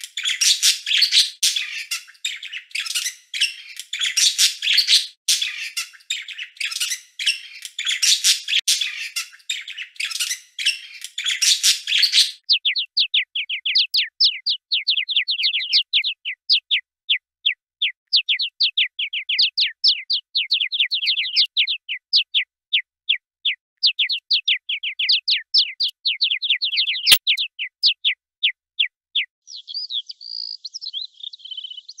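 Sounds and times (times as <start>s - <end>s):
bird twittering: 0.0s - 22.4s, 23.1s - 28.2s
bird chirping: 0.0s - 32.0s.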